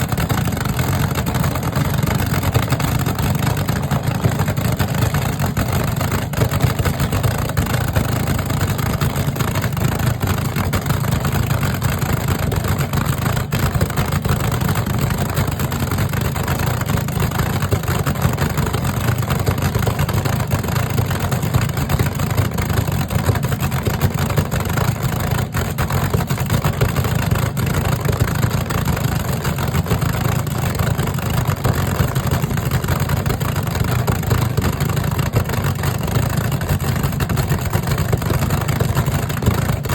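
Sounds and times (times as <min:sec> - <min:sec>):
low engine rumble: 0:00.0 - 0:39.9.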